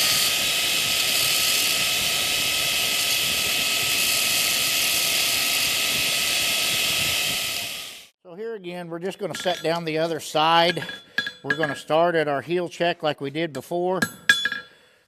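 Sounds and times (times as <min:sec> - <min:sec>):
gas forge burner hissing: 0:00.0 - 0:08.1, 0:09.3 - 0:11.9.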